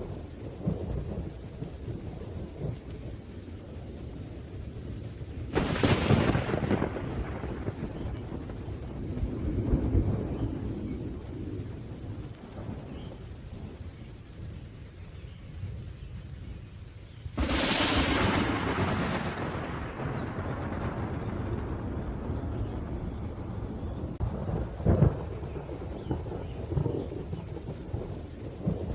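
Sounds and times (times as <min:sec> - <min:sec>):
steady rain: 0:00.0 - 0:28.9
thunder rumbling: 0:00.0 - 0:28.9
loud thunderclap: 0:05.4 - 0:13.7, 0:17.3 - 0:28.9.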